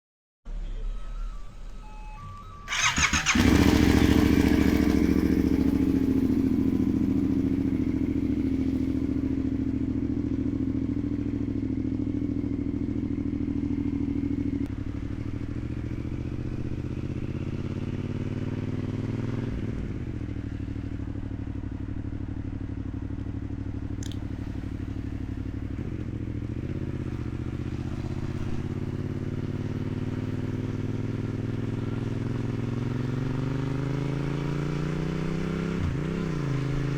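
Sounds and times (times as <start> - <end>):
motorcycle engine idling: 2.7 - 34.5.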